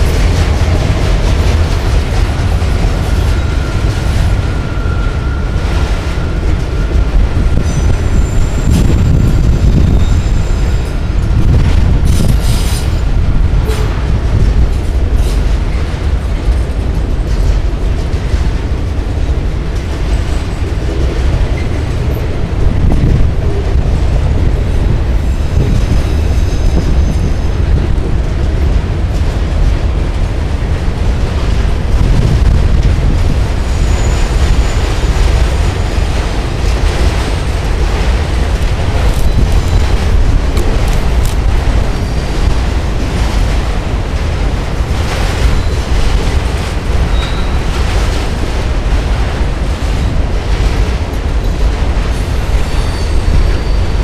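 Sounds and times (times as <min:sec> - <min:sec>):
freight train rumbling past: 0:00.0 - 0:54.0
faint high wheel squeal: 0:03.3 - 0:11.1, 0:47.1 - 0:47.7, 0:52.2 - 0:54.0
wheels clicking over rail joints: 0:06.2 - 0:53.9.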